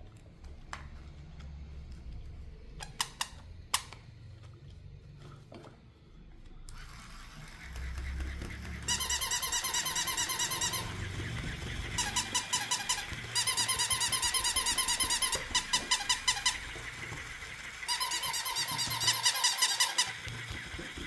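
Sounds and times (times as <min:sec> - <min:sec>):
toy's rapid high-pitched squeaks: 0:06.8 - 0:21.0.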